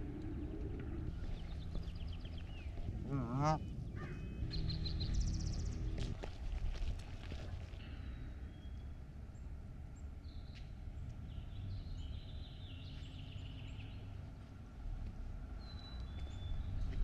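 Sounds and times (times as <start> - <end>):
songbirds chirping and singing: 0.0 - 6.3
steady low rumble: 0.0 - 9.4.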